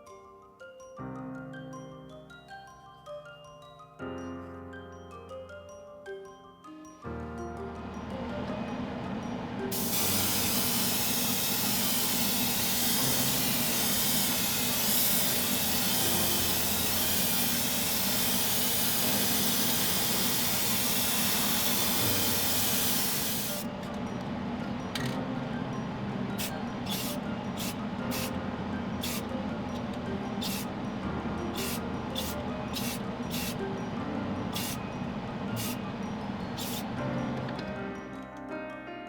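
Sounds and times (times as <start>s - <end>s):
loud spraying hiss: 9.7s - 23.7s, 26.4s - 28.3s, 29.0s - 29.2s, 30.4s - 30.7s, 31.6s - 33.6s, 34.6s - 34.8s, 35.6s - 35.8s, 36.6s - 36.8s.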